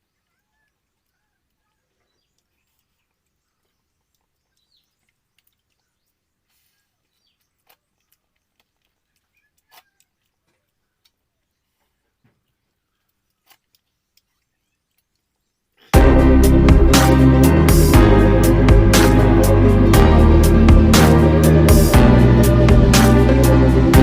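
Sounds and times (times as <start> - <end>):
faint bird chirps: 0.0 - 15.9.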